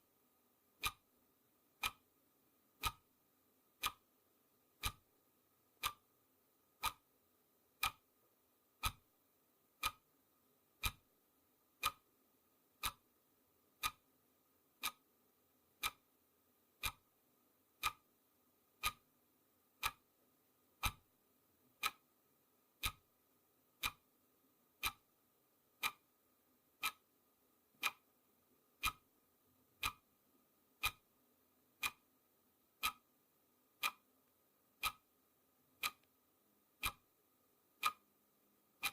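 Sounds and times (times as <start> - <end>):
clock ticking: 0.7 - 1.1, 1.7 - 5.1, 5.7 - 6.1, 6.7 - 7.1, 7.7 - 10.1, 10.8 - 12.1, 12.7 - 13.1, 13.7 - 14.1, 14.7 - 24.2, 24.8 - 29.2, 29.8 - 31.2, 31.8 - 35.2, 35.8 - 36.2, 36.8 - 38.1.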